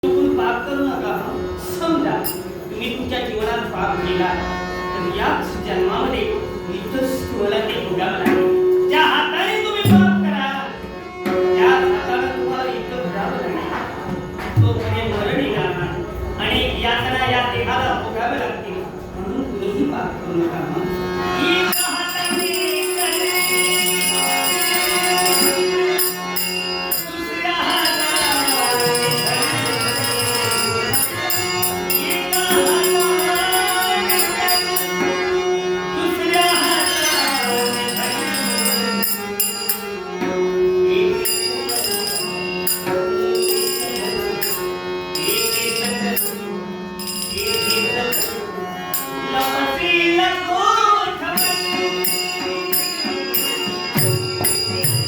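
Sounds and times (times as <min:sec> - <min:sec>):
harmonium drone: 0:00.0 - 0:55.0
man singing: 0:21.4 - 0:25.8, 0:26.9 - 0:30.1, 0:31.7 - 0:38.8
hand drum: 0:51.7 - 0:55.0.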